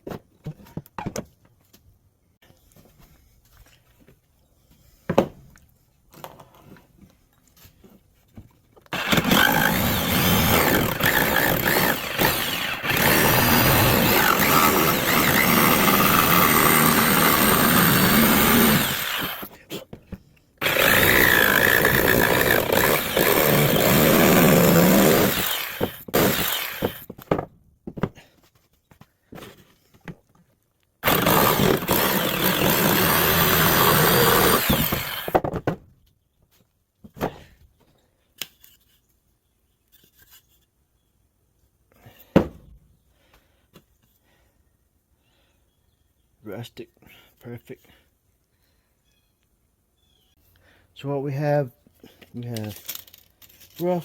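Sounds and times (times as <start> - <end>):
power saw cutting wood: 8.9 - 19.6, 20.6 - 27.1, 31.0 - 35.4.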